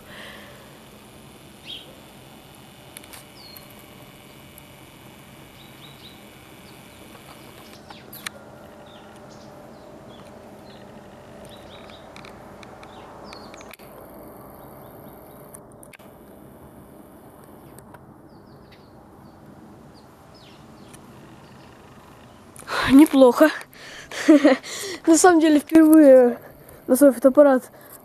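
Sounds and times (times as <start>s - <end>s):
high bird chirps: 1.6s - 1.9s, 3.3s - 3.7s, 5.5s - 10.9s, 11.5s - 12.1s.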